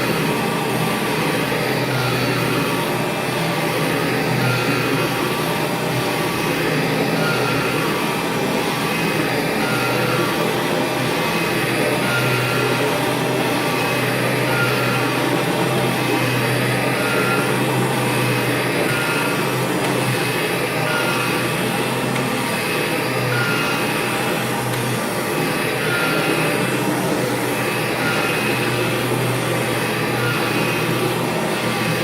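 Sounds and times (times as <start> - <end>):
upright vacuum cleaner running: 0.0 - 32.0.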